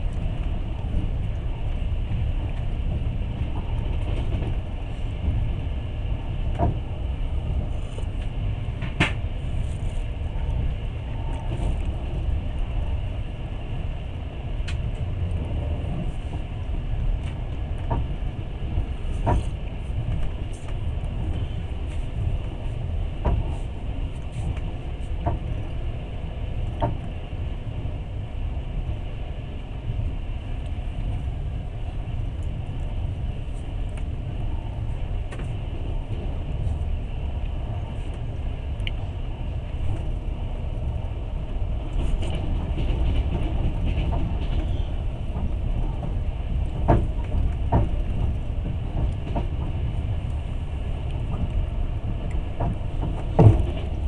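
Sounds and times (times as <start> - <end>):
train carriage rumble: 0.0 - 54.0
sharp clicks and knocks: 8.2 - 9.2.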